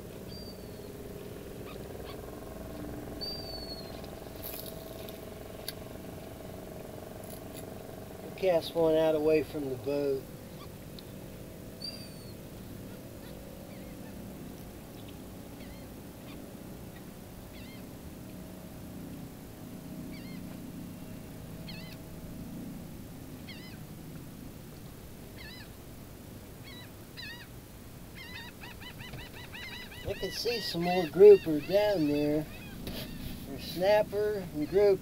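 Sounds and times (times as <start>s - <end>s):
bird giving short arched calls: 28.2s - 33.9s.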